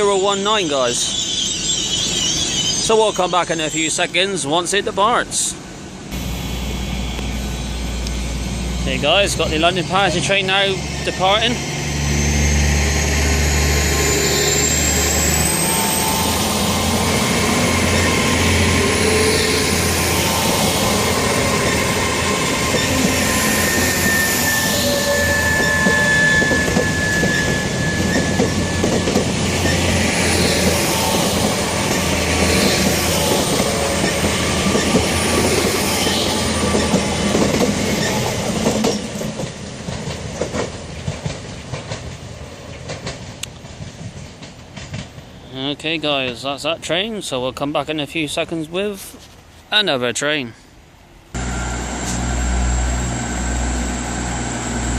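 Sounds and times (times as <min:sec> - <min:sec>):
high wheel squeal: 0:00.0 - 0:04.6, 0:06.2 - 0:39.1
train engines running: 0:00.0 - 0:47.3, 0:51.4 - 0:54.9
rising traction whine: 0:06.1 - 0:39.0, 0:51.3 - 0:54.9
wheels clicking over rail joints: 0:36.6 - 0:45.3.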